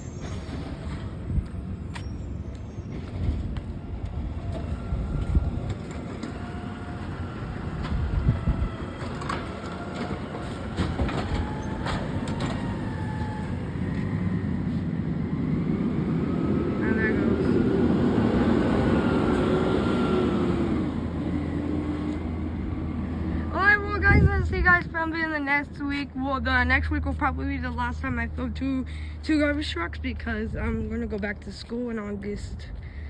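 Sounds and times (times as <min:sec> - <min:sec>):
faint gliding squeals: 0:00.0 - 0:03.4
garbage truck engine rumble: 0:00.0 - 0:31.5
clanks and rattles: 0:09.0 - 0:13.0.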